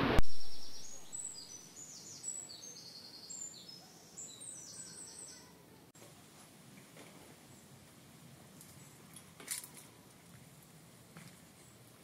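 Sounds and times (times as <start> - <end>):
small birds trilling: 0.3 - 5.6.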